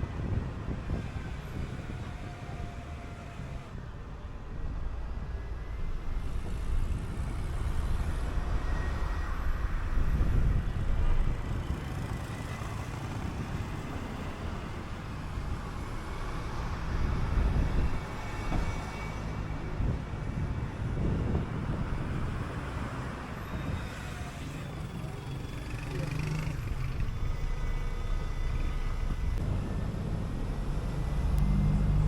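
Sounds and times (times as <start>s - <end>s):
bus engine running: 0.0s - 32.0s
road rumble: 0.0s - 32.0s.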